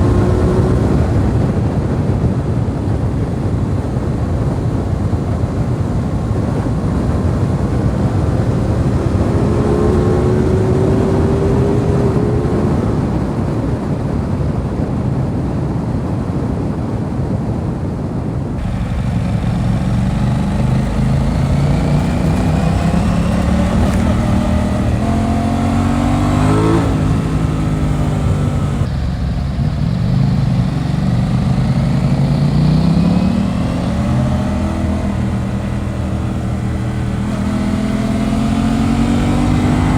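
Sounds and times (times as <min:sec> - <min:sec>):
motorcycle engine accelerating: 0:00.0 - 0:14.5, 0:18.6 - 0:39.9
wind rumble on microphone: 0:00.0 - 0:39.9.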